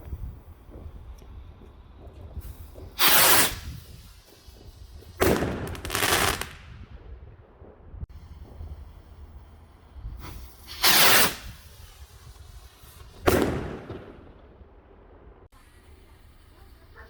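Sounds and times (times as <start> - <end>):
fireworks crackling bursts: 0.0 - 7.1, 8.2 - 14.6.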